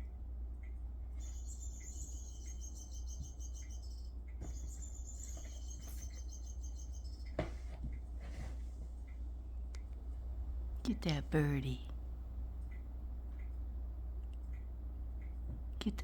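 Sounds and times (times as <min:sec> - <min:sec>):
steady low hum: 0:00.0 - 0:16.0
electronic bird chirping: 0:01.2 - 0:07.3.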